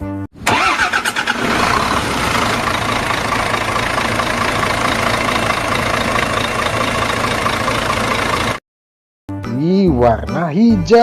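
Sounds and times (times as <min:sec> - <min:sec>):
vehicle engine idling: 0:00.4 - 0:08.6.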